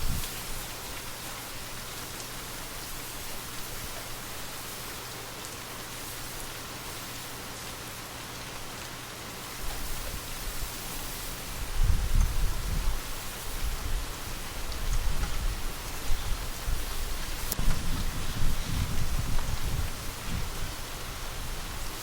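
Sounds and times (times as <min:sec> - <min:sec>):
rain hiss: 0:00.0 - 0:22.0.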